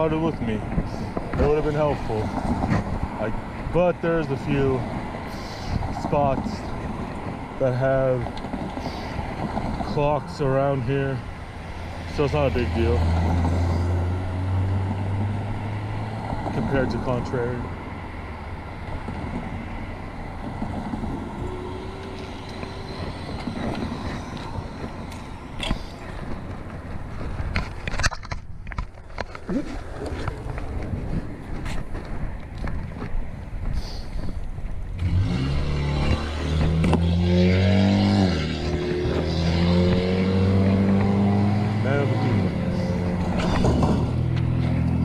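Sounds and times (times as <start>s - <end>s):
bicycle tyre noise on road: 0.0s - 45.0s
wind rumble: 0.0s - 45.0s
rushing noise: 8.7s - 27.8s
vehicle engine running: 38.0s - 45.0s.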